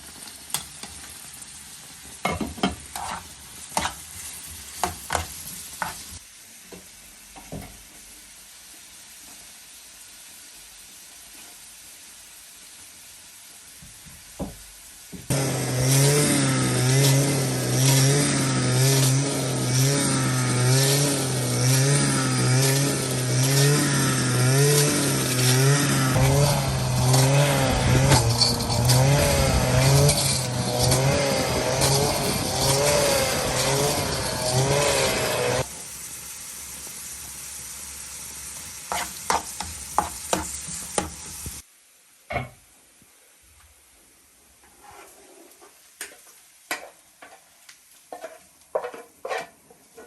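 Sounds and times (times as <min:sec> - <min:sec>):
hiss: 0:07.8 - 0:41.7
engine running unevenly: 0:15.3 - 0:35.6.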